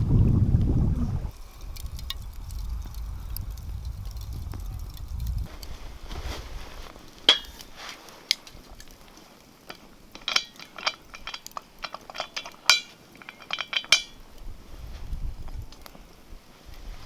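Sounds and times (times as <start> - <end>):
metal cookware clinking: 7.3 - 7.7, 9.7 - 14.3.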